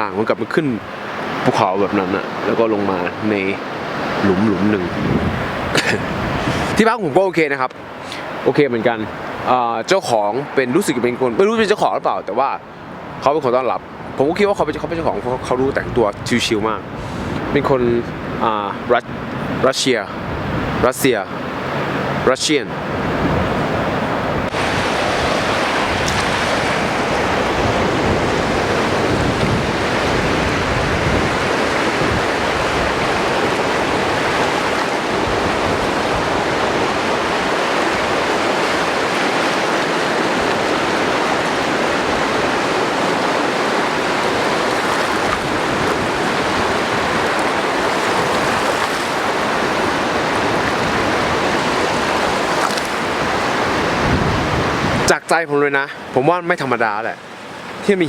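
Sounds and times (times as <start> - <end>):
lake water: 0.0 - 58.0
wind rushing: 4.2 - 6.8, 22.8 - 55.1.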